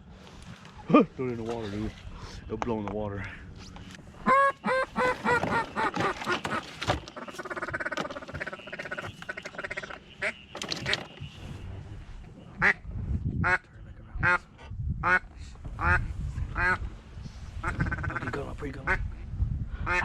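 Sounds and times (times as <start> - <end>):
duck quacking: 4.2 - 11.1.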